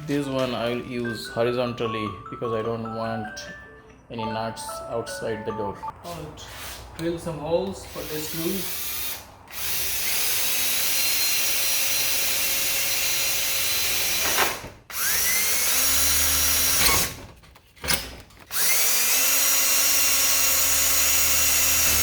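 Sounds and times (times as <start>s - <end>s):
power drill whining: 7.9s - 17.2s, 18.4s - 22.0s.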